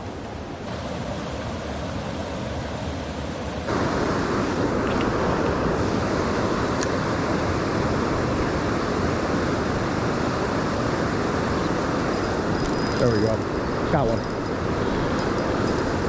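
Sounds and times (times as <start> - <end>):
river water flowing: 0.0 - 16.0.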